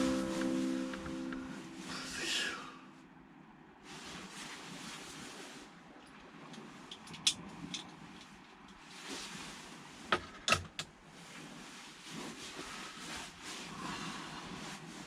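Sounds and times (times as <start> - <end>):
background music: 0.0 - 2.8.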